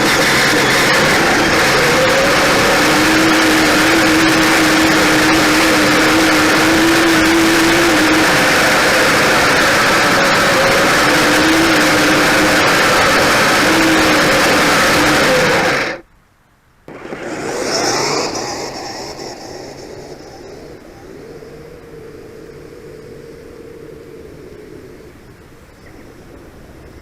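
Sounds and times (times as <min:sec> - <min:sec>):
toy vehicle motors and tracks: 0:00.0 - 0:16.0, 0:16.9 - 0:22.3.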